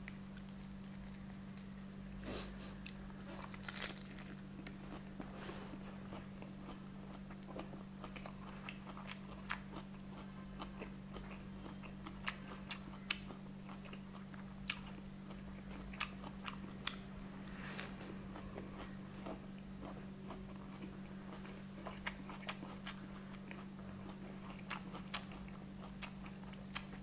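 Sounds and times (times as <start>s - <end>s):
steady low hum: 0.0s - 27.0s
wet chewing: 2.8s - 27.0s.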